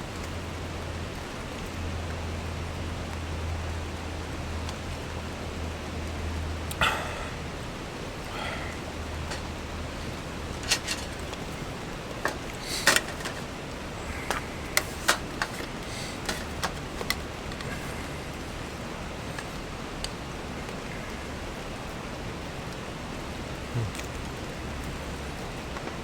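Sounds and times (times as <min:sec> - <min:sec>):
light clicks and taps: 0:14.1 - 0:18.0.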